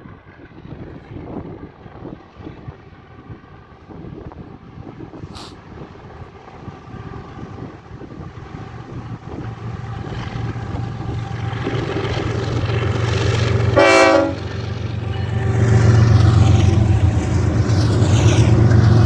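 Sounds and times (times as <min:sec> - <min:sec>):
diesel locomotive rumble: 0:00.1 - 0:19.0
locomotive horn blast: 0:13.6 - 0:19.0.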